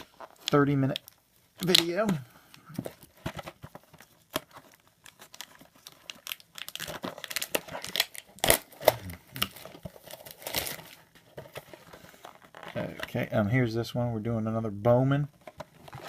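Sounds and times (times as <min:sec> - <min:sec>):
wrapper crinkling and tearing: 0:00.0 - 0:02.1, 0:03.1 - 0:11.7.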